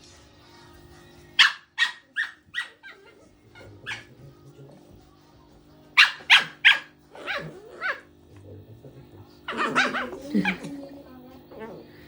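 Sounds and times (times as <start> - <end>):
puppy yipping: 1.4 - 4.1, 6.0 - 8.1.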